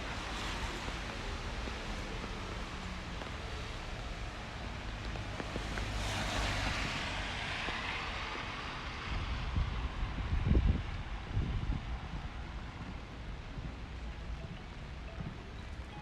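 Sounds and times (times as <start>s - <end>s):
tyres hissing on wet road: 0.0s - 14.2s
wet traffic: 0.0s - 16.0s.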